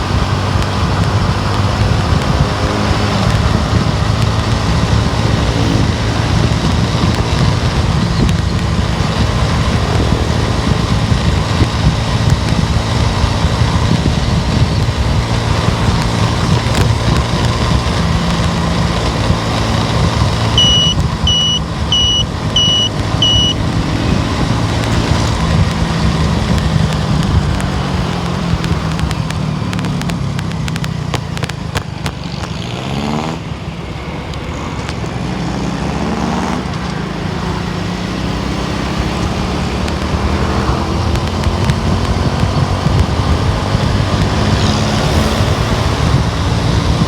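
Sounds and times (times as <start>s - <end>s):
car engine and tyre rumble: 0.0s - 47.0s
short high electronic beeps: 20.6s - 23.6s.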